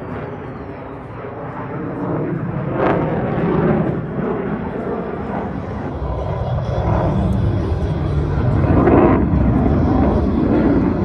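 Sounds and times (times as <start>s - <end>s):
aircraft engine rumble: 0.0s - 11.0s.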